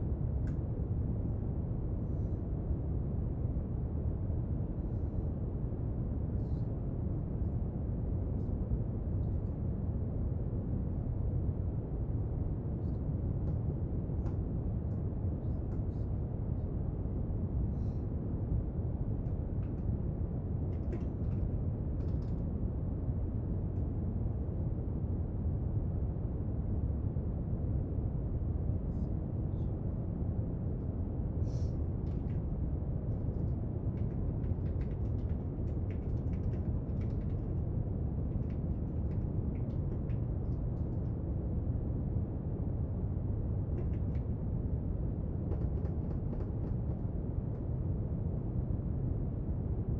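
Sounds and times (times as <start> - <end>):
faint clicks and scratches: 20.7 - 22.4, 33.1 - 41.1, 45.3 - 47.7.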